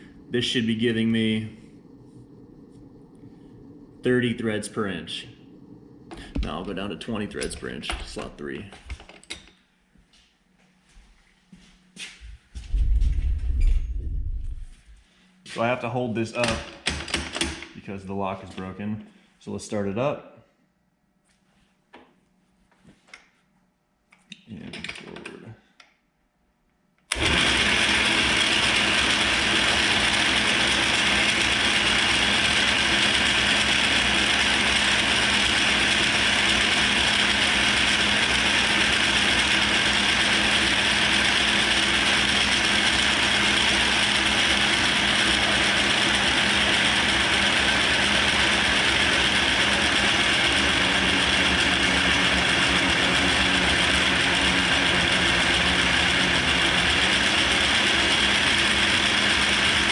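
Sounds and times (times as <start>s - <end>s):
lathe gears grinding: 27.1s - 59.9s.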